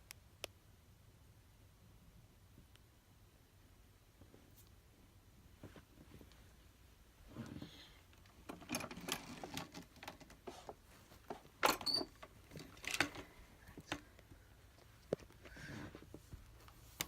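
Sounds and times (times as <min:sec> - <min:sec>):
clicks knocks and rattles: 0:08.3 - 0:14.1.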